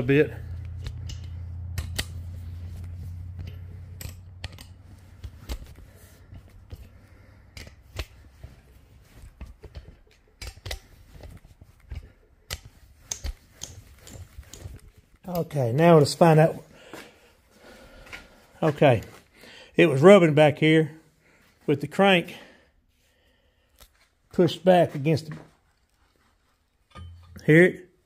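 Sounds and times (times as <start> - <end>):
low hum: 0.0 - 15.6
metallic clicks of socket wrench: 0.6 - 2.2.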